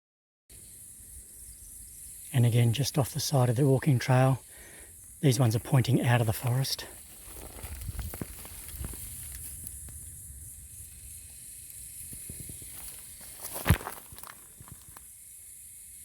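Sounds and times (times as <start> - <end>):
insect hiss: 0.5 - 16.0
footsteps on trail: 6.9 - 9.6, 12.1 - 15.0.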